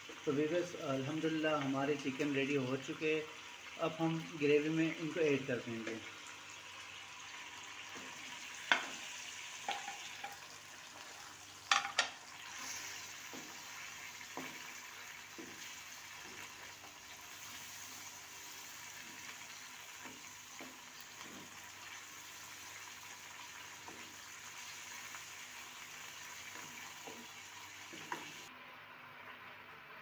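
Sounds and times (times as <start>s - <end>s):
chicken sizzling in a wok: 0.0s - 30.0s
wooden spoon knocking: 9.7s - 10.4s, 11.7s - 12.2s.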